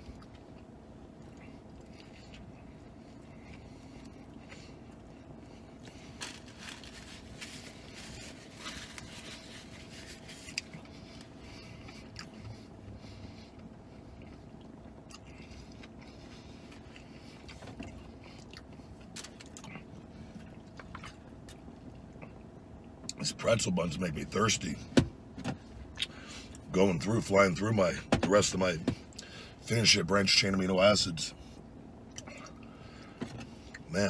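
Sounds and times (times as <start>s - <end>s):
person chewing food: 0.0s - 23.0s
faint steady hum: 0.0s - 34.0s.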